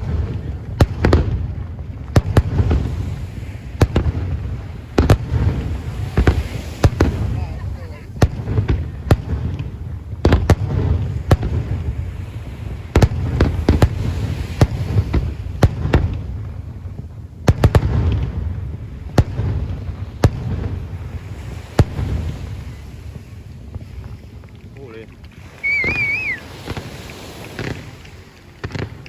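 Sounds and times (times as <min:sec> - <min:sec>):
fireworks shells bursting: 0:21.4 - 0:29.0.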